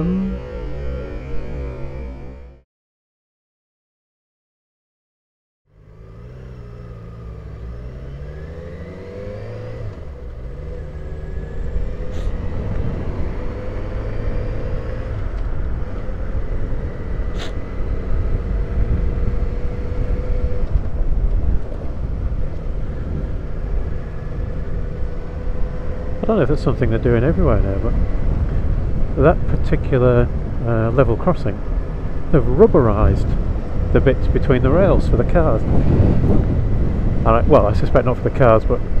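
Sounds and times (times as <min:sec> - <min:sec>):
wind and road noise: 0:00.0 - 0:02.6, 0:05.7 - 0:39.0
motorcycle engine pulling away: 0:05.7 - 0:29.0.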